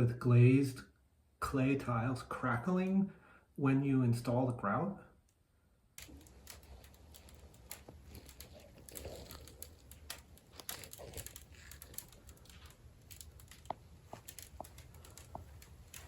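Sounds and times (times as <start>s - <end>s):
tiles crackling: 6.0s - 16.0s.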